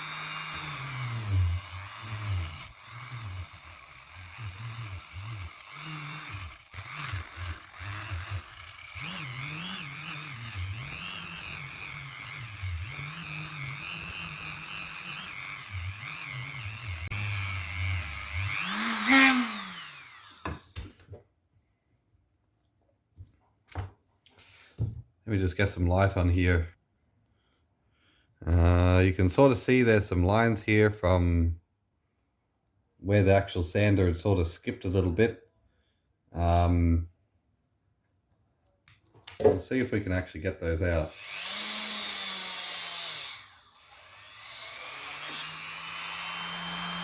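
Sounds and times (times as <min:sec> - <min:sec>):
rotary tool whining: 0:00.0 - 0:20.7, 0:41.1 - 0:47.0
rotary tool winding down: 0:00.0 - 0:20.7, 0:41.1 - 0:47.0.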